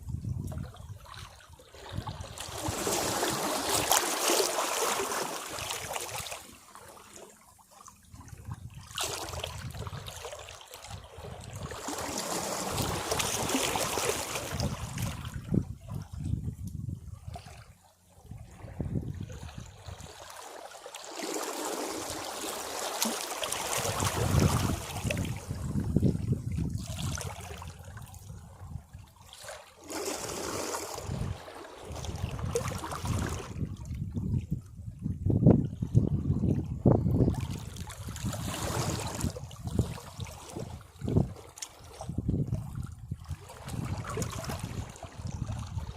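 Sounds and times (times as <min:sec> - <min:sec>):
sea waves washing against rocks: 0:02.4 - 0:06.3, 0:11.8 - 0:15.2, 0:21.1 - 0:26.0.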